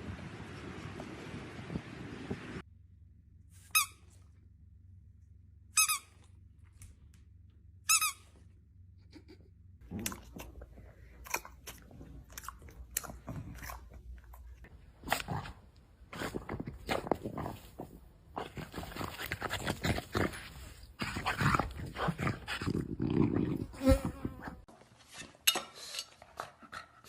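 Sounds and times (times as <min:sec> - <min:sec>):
crunching and chewing: 0:09.8 - 0:24.4.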